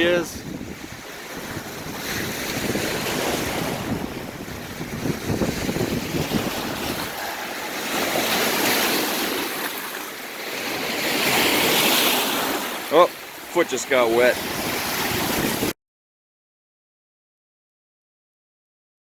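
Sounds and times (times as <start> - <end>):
wind buffeting microphone: 0.0 - 9.6, 14.2 - 15.7
waves washing on shore: 0.0 - 15.8.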